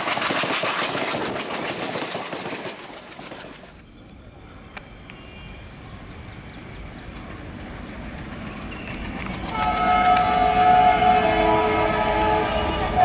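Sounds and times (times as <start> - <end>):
diesel locomotive engine rumble: 0.0 - 13.0
train horn: 9.5 - 13.0.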